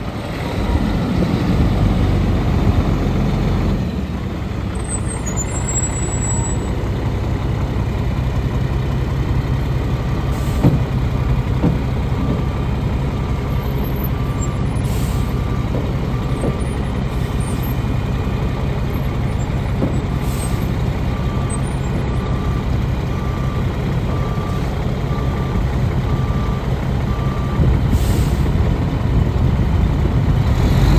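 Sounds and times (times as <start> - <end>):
truck diesel engine running: 0.0 - 30.9
air brake hisses: 27.9 - 28.5.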